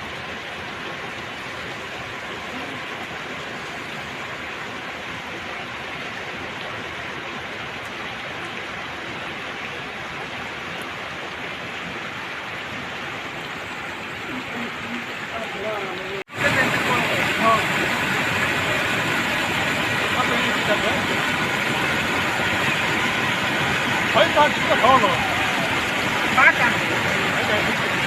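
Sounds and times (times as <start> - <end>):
floodwater rushing: 0.0 - 28.0.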